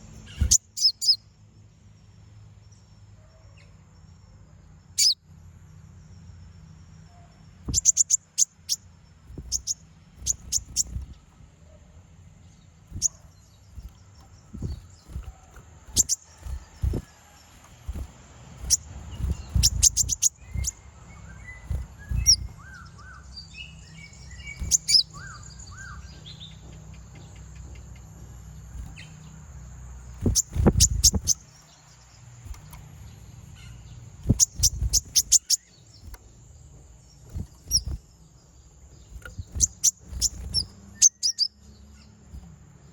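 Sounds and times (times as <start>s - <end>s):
bird soft twittering: 0.0s - 1.2s, 4.9s - 5.2s, 7.1s - 11.9s, 12.6s - 26.6s, 30.0s - 36.4s, 37.0s - 42.9s
bird high sharp chips: 12.9s - 20.8s, 21.4s - 22.6s, 33.6s - 36.2s, 39.2s - 41.5s
low rumbling thumps: 12.9s - 20.8s, 21.4s - 22.7s, 30.1s - 31.4s.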